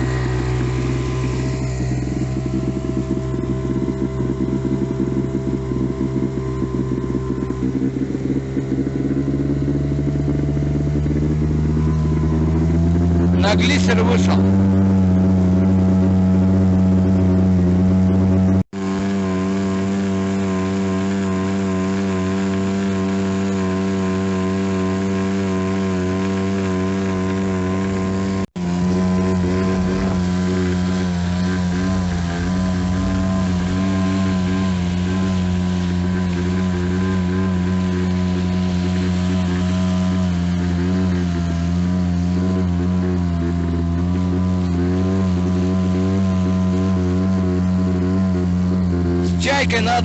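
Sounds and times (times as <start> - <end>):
motorboat engine drone: 0.0 - 50.0
rushing water noise: 28.6 - 40.8.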